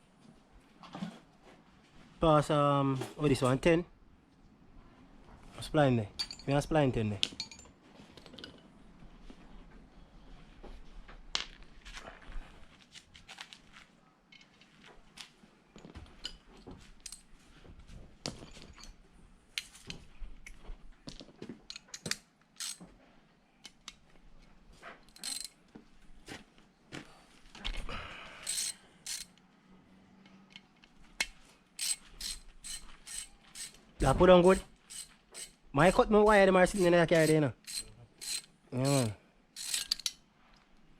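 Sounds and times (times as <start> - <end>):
metal clinks of tools: 6.2 - 6.7, 7.3 - 8.6, 25.1 - 25.6, 28.4 - 29.3, 36.8 - 40.2
ratchet wrench clicking: 22.6 - 22.8, 28.4 - 29.4, 31.8 - 33.8, 34.4 - 35.6, 36.7 - 40.2.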